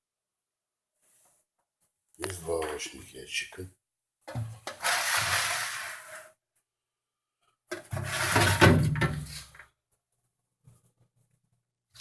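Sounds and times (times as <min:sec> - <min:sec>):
plastic drawers sliding in runners: 0:04.7 - 0:06.2.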